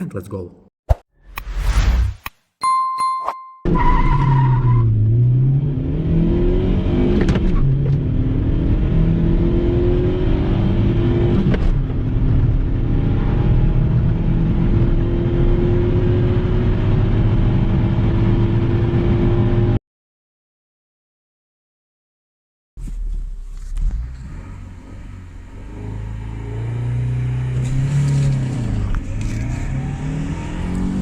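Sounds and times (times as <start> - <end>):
car engine accelerating: 3.8 - 19.8, 22.8 - 31.0.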